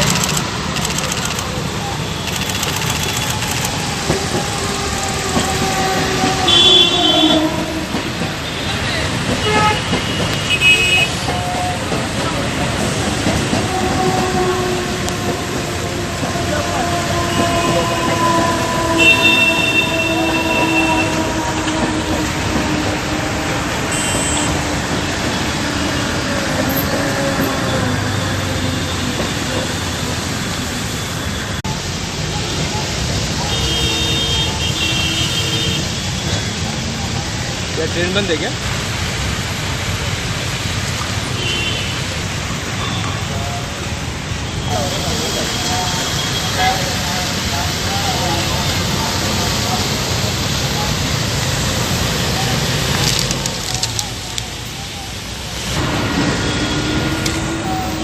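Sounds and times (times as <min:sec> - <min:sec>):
vehicle engine noise: 0:00.0 - 0:09.4, 0:46.3 - 0:58.0
electric train rumbling on track: 0:00.0 - 0:58.0
high wheel squeal: 0:44.4 - 0:58.0.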